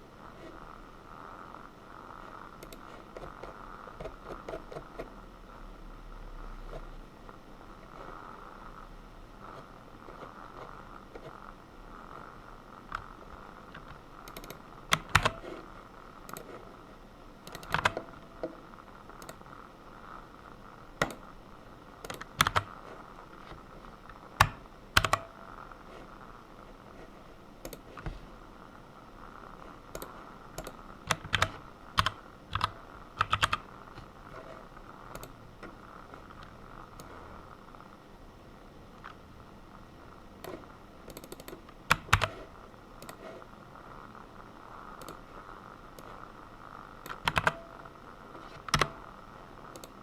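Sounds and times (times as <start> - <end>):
faint background hum: 0.0 - 50.0
typing on computer keyboard: 13.7 - 15.5, 17.5 - 18.5, 22.0 - 22.7, 24.4 - 25.4, 29.9 - 33.7, 40.4 - 43.2, 47.0 - 47.7, 48.5 - 49.0.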